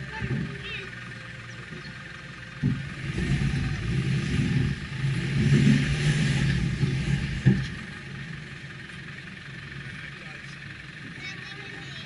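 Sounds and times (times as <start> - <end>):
car engine revving under load: 0.0 - 12.0.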